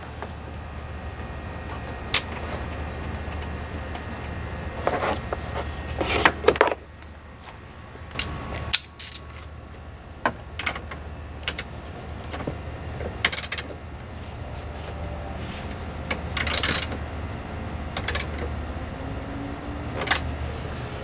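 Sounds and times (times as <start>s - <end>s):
steady low hum: 0.0s - 21.0s
tools and parts clicking: 8.1s - 9.5s, 10.2s - 11.7s, 13.2s - 13.8s, 16.1s - 17.0s, 17.9s - 18.5s, 20.0s - 20.3s.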